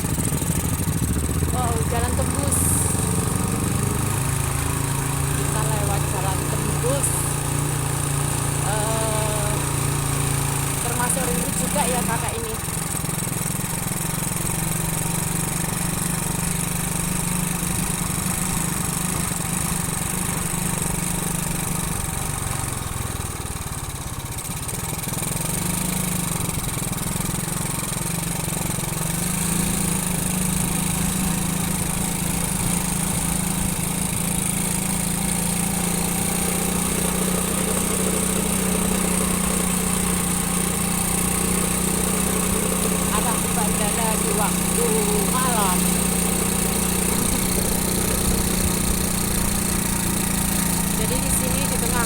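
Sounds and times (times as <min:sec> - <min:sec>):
motorcycle engine running: 0:00.0 - 0:52.0
wind and road noise: 0:39.8 - 0:52.0.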